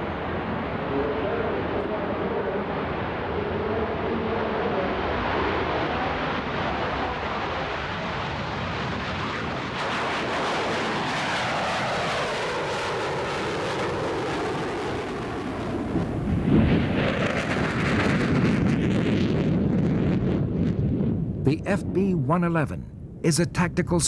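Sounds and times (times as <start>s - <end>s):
jet engines whining past: 0.0s - 24.0s
deep rumble: 16.0s - 24.0s.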